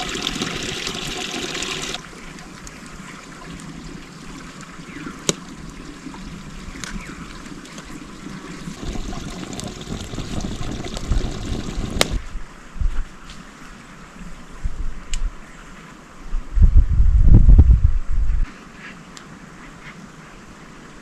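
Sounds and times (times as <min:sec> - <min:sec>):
water trickling: 0:00.0 - 0:12.2.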